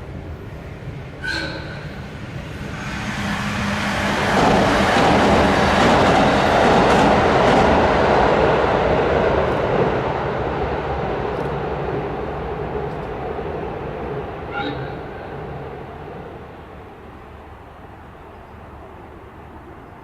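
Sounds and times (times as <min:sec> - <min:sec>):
train wheels rumbling on rail: 0:00.0 - 0:20.0
rail-joint clicks: 0:01.2 - 0:02.1, 0:11.3 - 0:12.0, 0:12.8 - 0:13.2.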